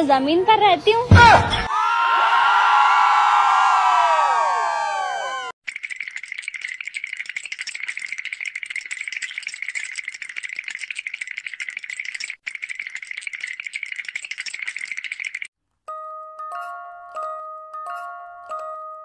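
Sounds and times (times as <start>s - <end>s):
pot lid rattling: 5.7s - 15.5s.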